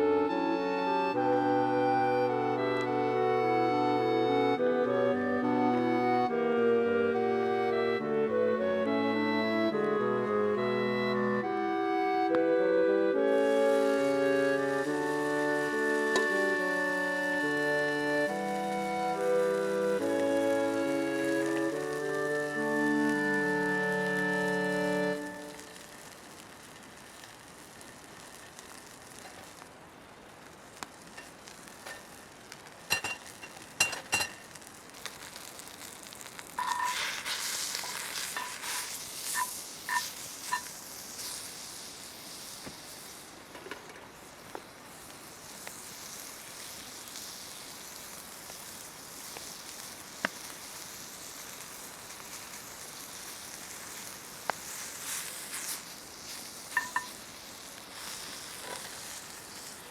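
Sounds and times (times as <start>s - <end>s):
food sizzling: 12.4s - 59.9s.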